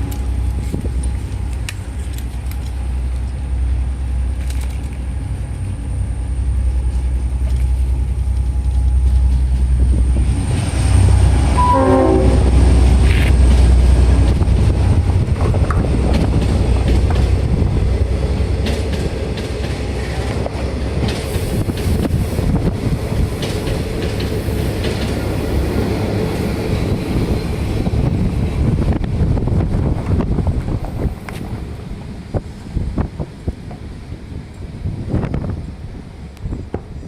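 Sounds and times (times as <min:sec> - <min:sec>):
wheels clicking over rail joints: 0:00.0 - 0:05.7, 0:12.9 - 0:35.5
diesel train passing: 0:00.0 - 0:37.0.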